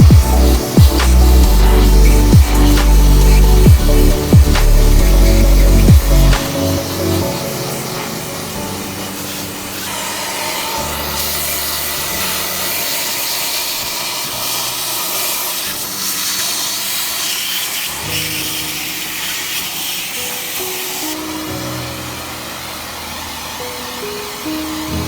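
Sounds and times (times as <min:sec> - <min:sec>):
electronic background music: 0:00.0 - 0:17.1
rushing hiss of air: 0:00.0 - 0:25.0.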